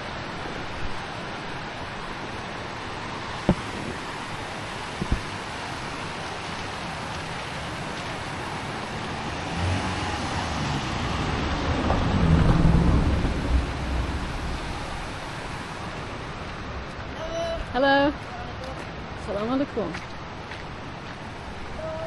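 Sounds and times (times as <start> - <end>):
rushing floodwater: 0.0 - 22.0
deep rumble: 9.1 - 17.1.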